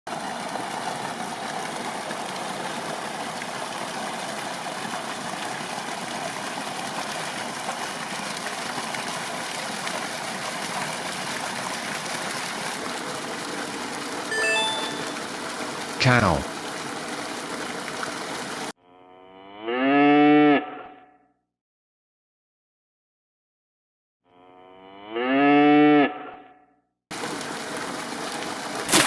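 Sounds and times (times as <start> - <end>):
running water rushing: 0.1 - 18.7.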